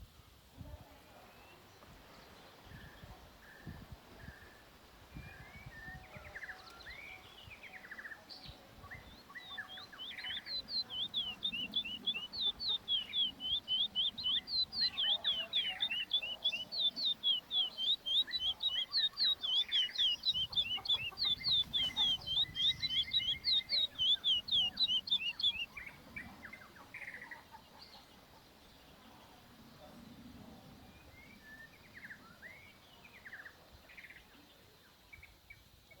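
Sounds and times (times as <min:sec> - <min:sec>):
bird chicks chirping: 0:04.5 - 0:35.3.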